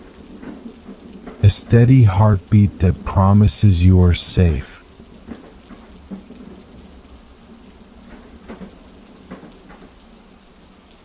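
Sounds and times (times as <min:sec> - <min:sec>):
heavy rain hiss: 0:01.4 - 0:04.9.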